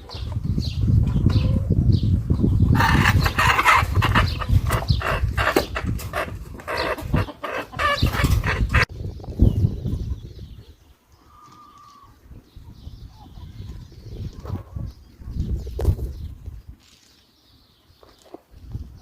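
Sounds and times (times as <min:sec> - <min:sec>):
outdoor background: 0:00.0 - 0:19.0
busy animal calls: 0:02.7 - 0:08.9.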